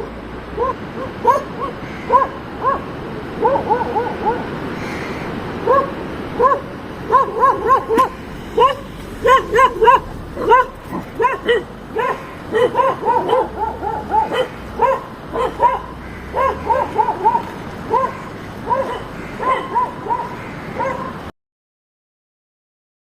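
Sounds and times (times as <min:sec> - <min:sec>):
dogs barking: 0:00.6 - 0:21.3.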